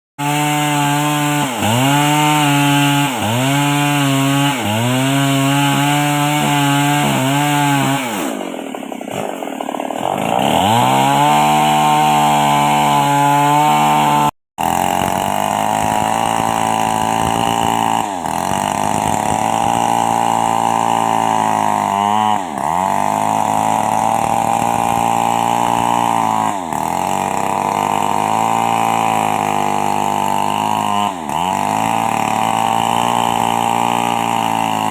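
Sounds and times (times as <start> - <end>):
two-stroke chainsaw cutting wood: 0.2 - 34.9.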